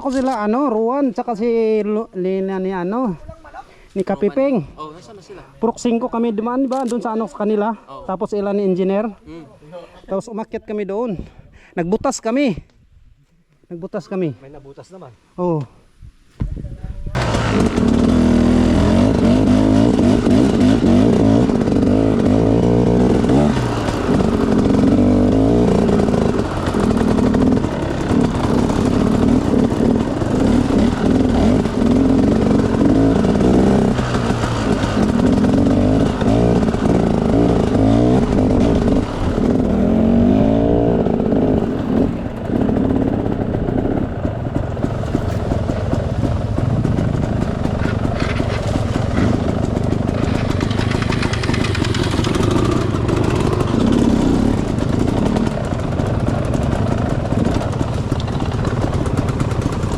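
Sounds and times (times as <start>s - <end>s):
dirt bike engine revving: 17.2s - 59.9s.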